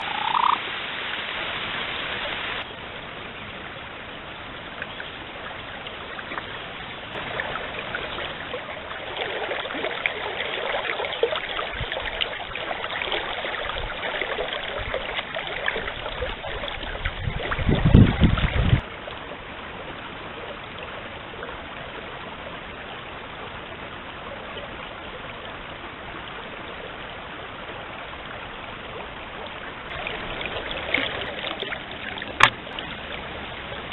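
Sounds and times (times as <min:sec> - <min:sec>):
stream rushing: 0:00.0 - 0:33.9.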